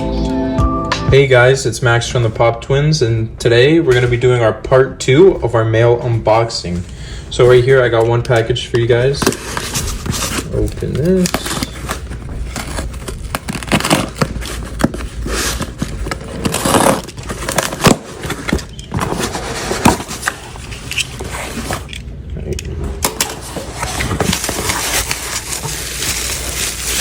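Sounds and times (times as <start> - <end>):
cardboard package being torn open: 9.2 - 21.2, 23.7 - 27.0.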